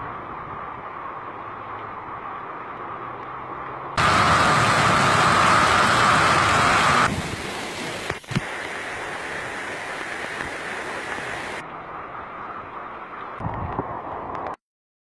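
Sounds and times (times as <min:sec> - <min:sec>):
heavy rain pouring: 0:04.0 - 0:14.6.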